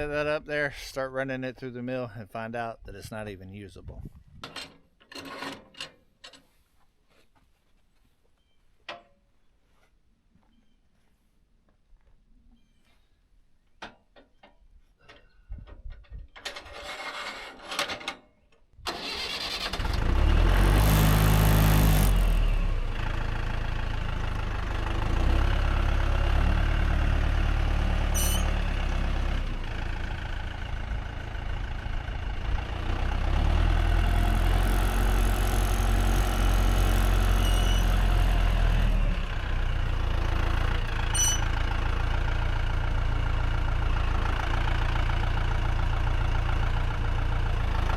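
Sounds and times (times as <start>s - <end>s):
tractor engine starting and running: 15.1s - 47.9s.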